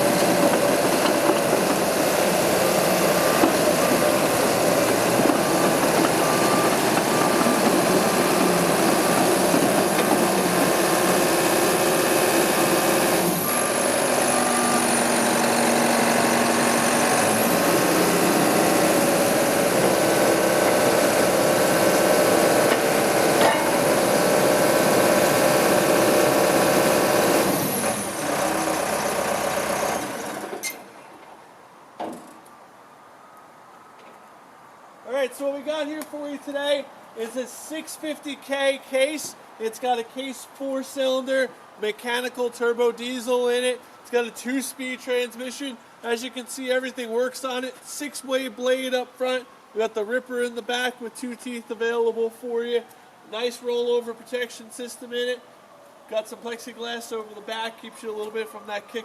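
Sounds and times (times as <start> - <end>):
diesel engine running: 0.0 - 30.6
back-up alarm beeping: 5.7 - 7.6.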